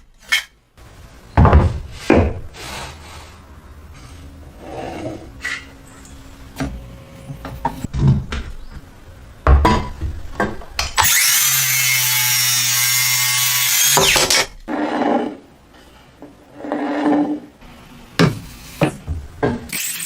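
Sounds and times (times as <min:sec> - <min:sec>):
power tool cutting wood: 0:11.0 - 0:14.5.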